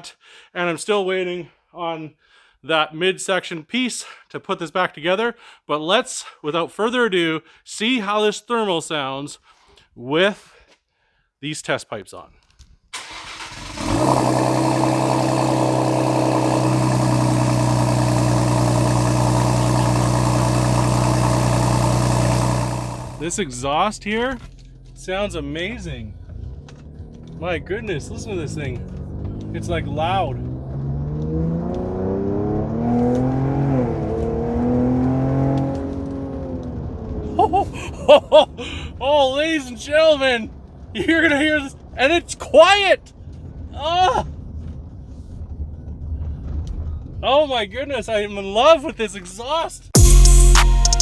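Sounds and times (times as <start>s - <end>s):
turbocharged engine idling: 13.5s - 23.4s, 50.0s - 51.0s.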